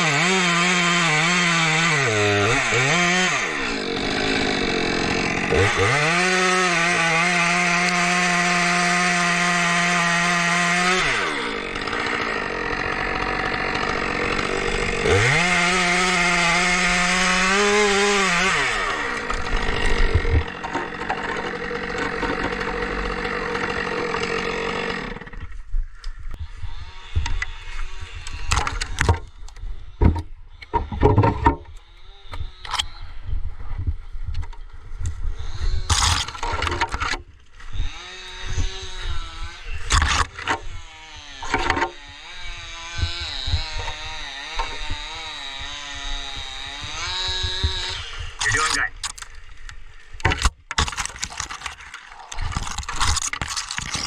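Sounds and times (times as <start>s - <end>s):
chainsaw engine revving: 0.0s - 25.4s, 37.7s - 49.4s, 50.3s - 54.0s.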